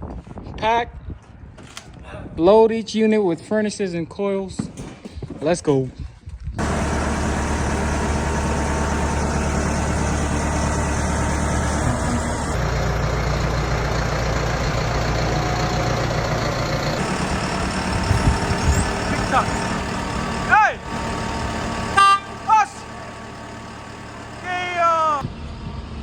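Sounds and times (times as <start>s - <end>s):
vehicle engine droning: 6.6s - 26.0s.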